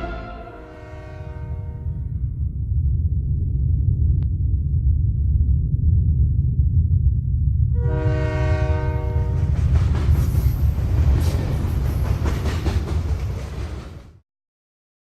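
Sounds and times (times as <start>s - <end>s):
train horn: 0.0s - 2.2s, 7.8s - 9.6s
deep rumble: 0.0s - 11.6s
train wheels clattering: 9.3s - 14.2s.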